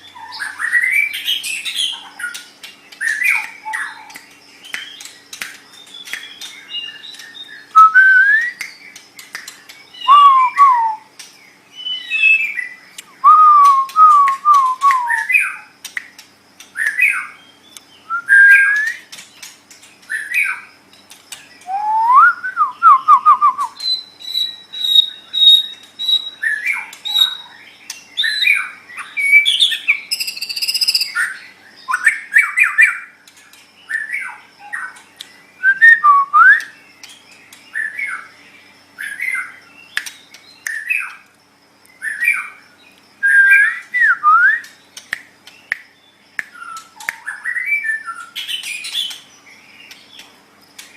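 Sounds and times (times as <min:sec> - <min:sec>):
bird singing whistled phrases: 0:05.7 - 0:09.0, 0:09.9 - 0:11.1, 0:11.7 - 0:15.7, 0:16.8 - 0:19.1, 0:21.6 - 0:27.6, 0:28.2 - 0:33.1, 0:35.6 - 0:36.8, 0:43.2 - 0:44.8, 0:46.4 - 0:49.2.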